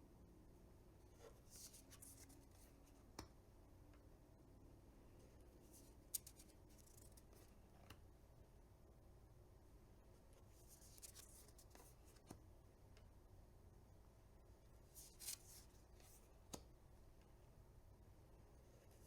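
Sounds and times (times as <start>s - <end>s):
cards sliding swishes: 15.0s - 16.3s.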